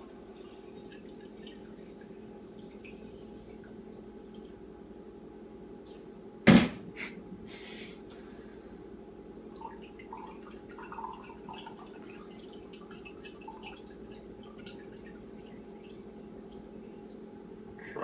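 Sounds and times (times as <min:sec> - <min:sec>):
wet squelching and dripping juice: 0:00.4 - 0:06.2, 0:09.1 - 0:17.6
sharp knock: 0:06.5 - 0:07.0.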